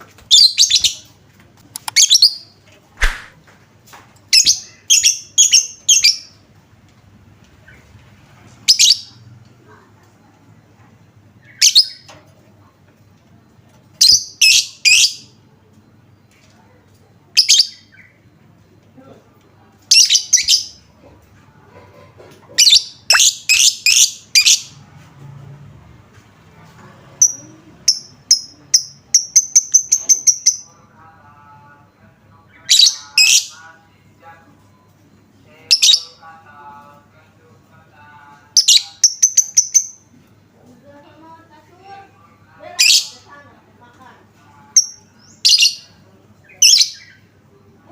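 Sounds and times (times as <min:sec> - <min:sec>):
bird sharp chirps: 0:03.0 - 0:03.4
lovebird shrill calls: 0:23.1 - 0:24.0.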